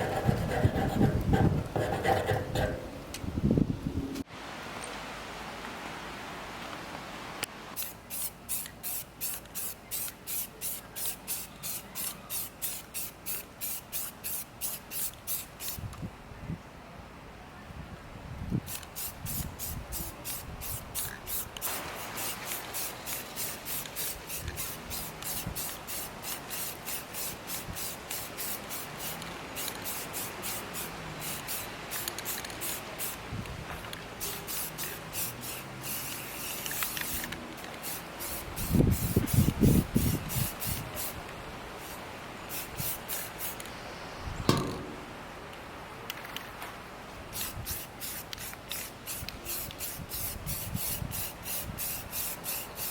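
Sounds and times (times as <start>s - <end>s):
spray paint can hissing: 7.8s - 15.8s, 18.7s - 33.2s, 34.2s - 41.2s, 41.8s - 43.7s, 47.3s - 52.9s
single knock: 44.5s - 45.0s.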